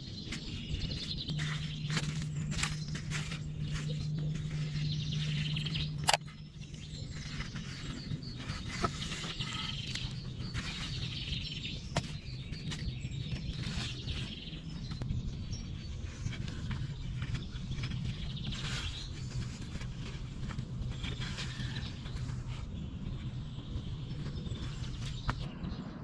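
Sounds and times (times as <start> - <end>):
low steady hum: 0.0 - 26.0
small birds chirping: 0.0 - 26.0
scattered clicks: 5.5 - 6.4.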